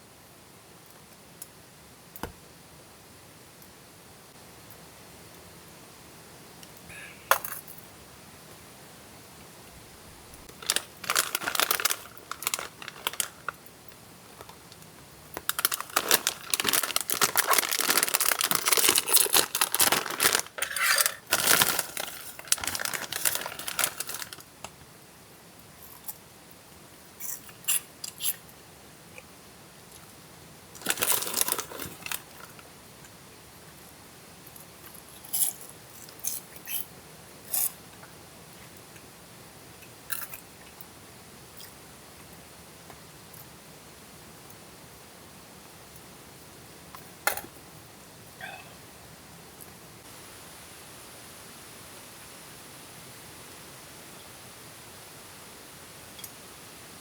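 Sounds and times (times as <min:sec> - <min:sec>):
crinkling and rustling: 0:09.8 - 0:13.6, 0:14.4 - 0:24.8, 0:30.8 - 0:32.7.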